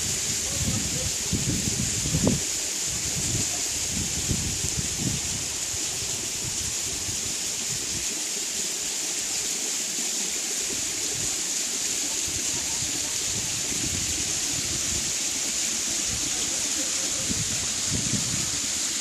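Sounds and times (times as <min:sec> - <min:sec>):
wind buffeting microphone: 0:00.0 - 0:05.6, 0:12.5 - 0:15.1, 0:17.2 - 0:18.7
waterfall running: 0:00.0 - 0:19.0.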